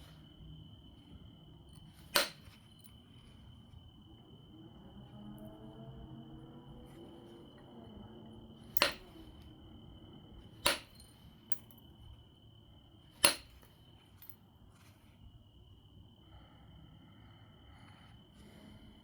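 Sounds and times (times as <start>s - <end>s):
stone strikes with glassy ring: 8.8s - 9.2s, 10.6s - 11.8s, 13.2s - 13.7s.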